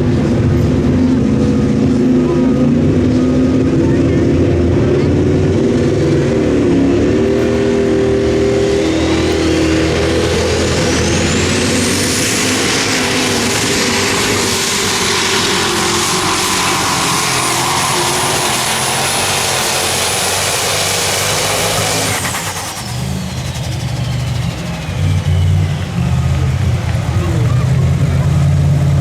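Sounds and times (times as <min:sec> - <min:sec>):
tractor diesel engine: 0:00.0 - 0:29.0
turbocharger whistle: 0:06.7 - 0:28.6.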